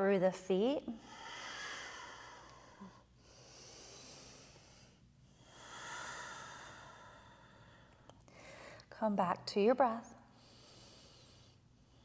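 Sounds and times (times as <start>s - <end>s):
person breathing slowly: 1.0s - 8.9s, 10.3s - 12.0s.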